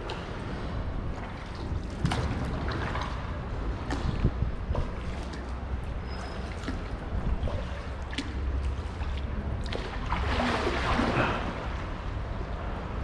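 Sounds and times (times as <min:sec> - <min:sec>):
steady low rumble: 0:00.0 - 0:06.0
water splashing off paddle: 0:06.3 - 0:11.8.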